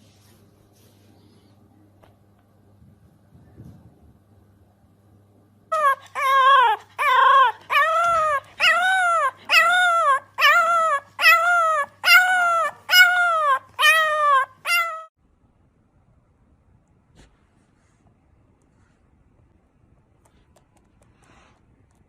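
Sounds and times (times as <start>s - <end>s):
dog howling and whining: 5.7s - 15.1s.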